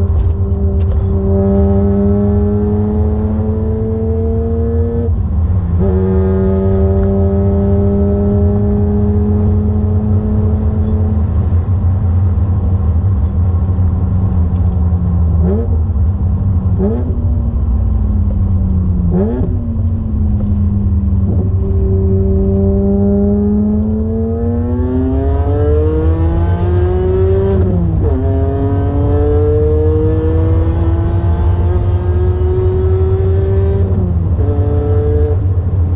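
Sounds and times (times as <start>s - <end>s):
car engine accelerating through gears: 0.0s - 35.9s
low rumble: 6.7s - 25.2s.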